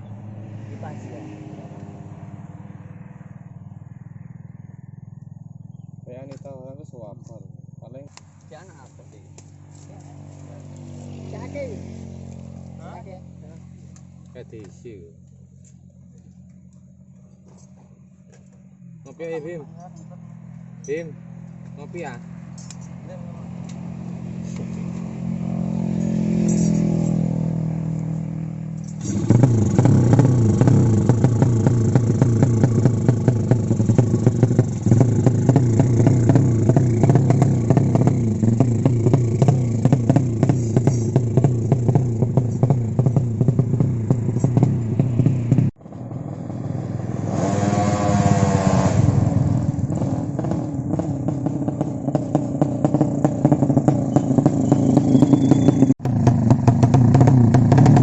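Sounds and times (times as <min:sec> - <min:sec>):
racing motorcycle engine: 0:07.1 - 0:58.0.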